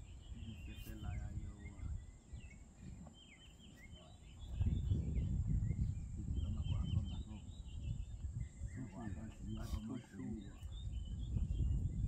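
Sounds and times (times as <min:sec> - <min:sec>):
high insect hum: 0:00.0 - 0:12.0
wild birds chirping: 0:00.0 - 0:12.0
low rumbling noise: 0:04.2 - 0:09.5.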